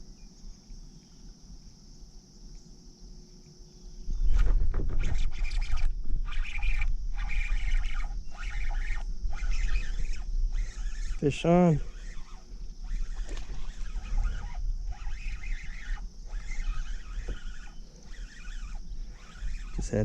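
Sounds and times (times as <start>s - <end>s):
crickets trilling: 0.0s - 20.0s
rustling bursts: 11.8s - 20.0s.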